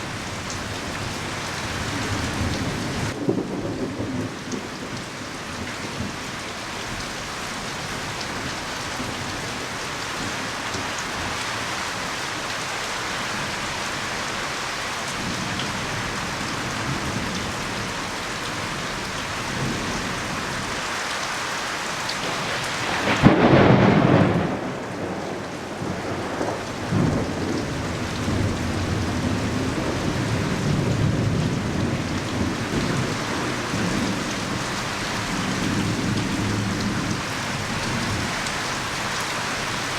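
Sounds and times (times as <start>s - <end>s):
strong wind: 0.0s - 6.8s
heavy rain falling: 0.0s - 39.9s.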